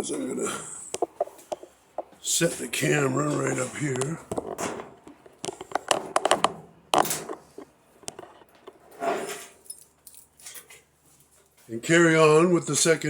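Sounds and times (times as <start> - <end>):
camera handling clicks and knocks: 4.3 - 8.3.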